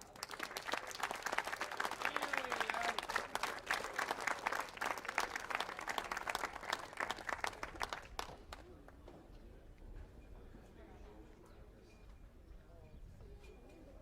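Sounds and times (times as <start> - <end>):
crowd applauding: 0.0 - 8.6
faint cheer: 1.5 - 3.8.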